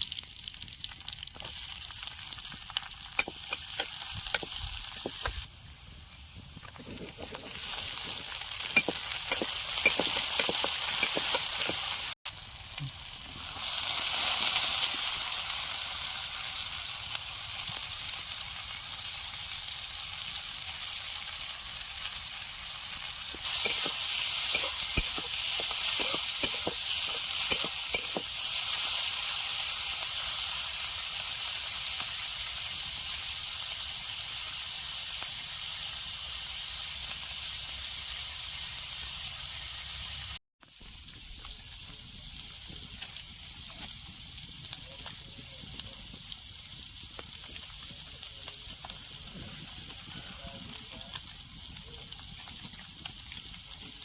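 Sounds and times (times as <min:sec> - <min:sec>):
food sizzling in hot oil: 0:00.0 - 0:54.0
utensil clicks and scrapes in pan: 0:02.7 - 0:05.5, 0:06.1 - 0:12.1, 0:23.3 - 0:28.7.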